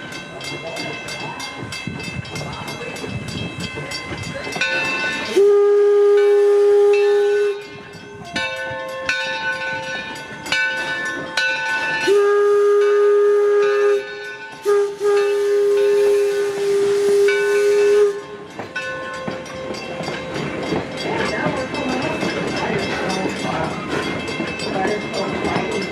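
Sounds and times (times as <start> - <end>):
train clattering: 0.0 - 25.9
steam hissing: 1.2 - 8.0, 9.6 - 25.9
steam locomotive whistle: 5.1 - 8.4, 12.0 - 18.5.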